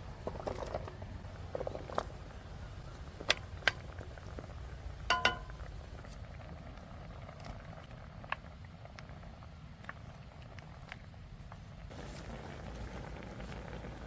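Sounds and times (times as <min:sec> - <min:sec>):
ringing metal clink: 0:05.1 - 0:05.7.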